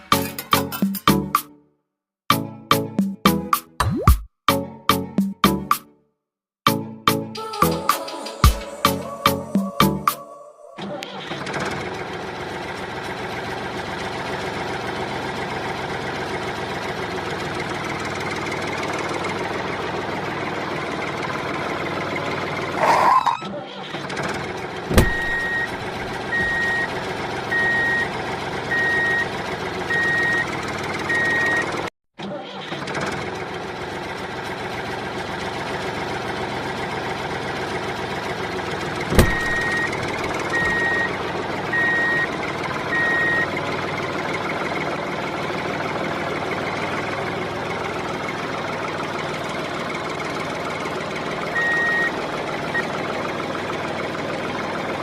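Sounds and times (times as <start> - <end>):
high electronic beep: 25.1 - 25.7, 39.2 - 39.9.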